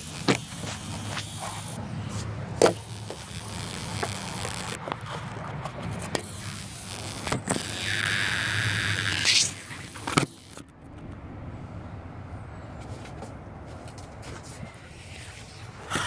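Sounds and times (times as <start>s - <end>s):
rushing whirr: 0.0s - 12.9s
scattered clicks and knocks: 2.5s - 11.3s.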